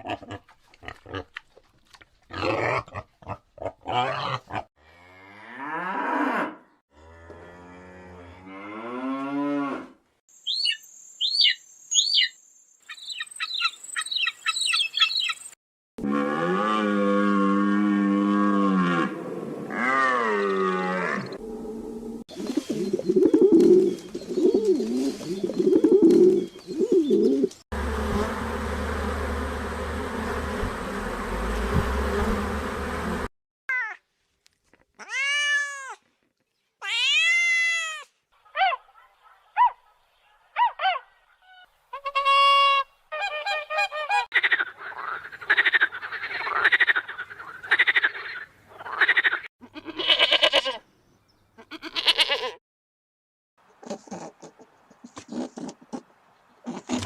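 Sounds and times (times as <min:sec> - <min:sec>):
rapid rasping animal calls: 0:43.2 - 0:50.4.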